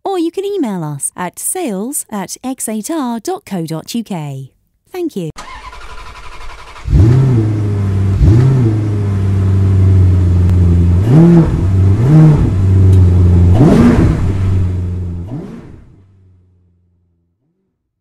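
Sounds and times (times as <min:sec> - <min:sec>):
car engine idling and revving: 0:05.4 - 0:17.9.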